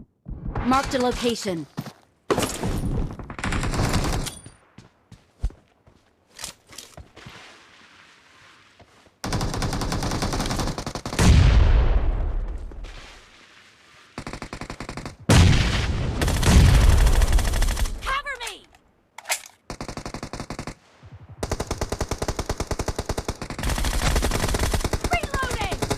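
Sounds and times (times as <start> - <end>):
video game automatic gunfire: 21.4 - 25.9.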